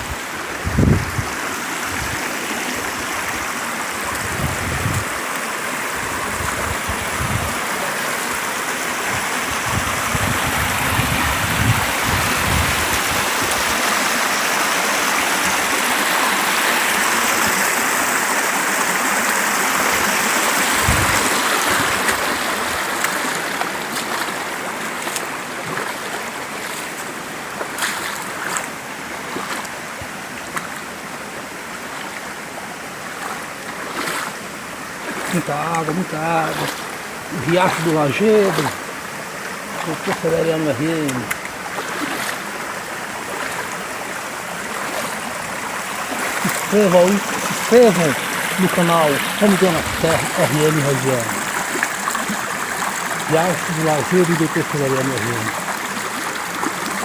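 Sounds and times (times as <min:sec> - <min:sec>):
water rushing over rock: 0:00.0 - 0:57.0.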